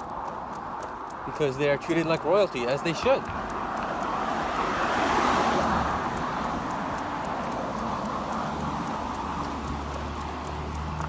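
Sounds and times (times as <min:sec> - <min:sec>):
car passing by: 0:03.3 - 0:11.0.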